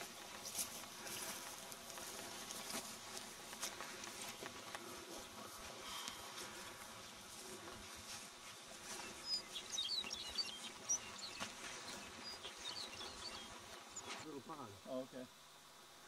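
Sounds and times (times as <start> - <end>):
faint steady hum: 0.0 - 16.0
small bird chirping: 8.9 - 14.2.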